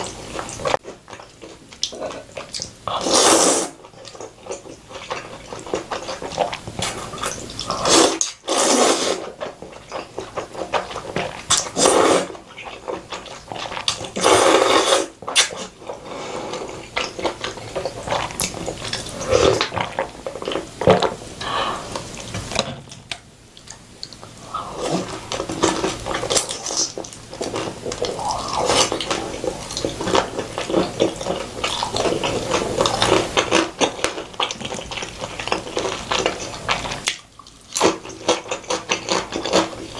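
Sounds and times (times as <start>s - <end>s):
wet chewing: 0.0s - 39.9s
person slurping noodles: 2.9s - 3.8s, 6.8s - 9.3s, 11.6s - 12.4s, 14.1s - 16.9s, 18.9s - 19.7s, 27.5s - 29.9s.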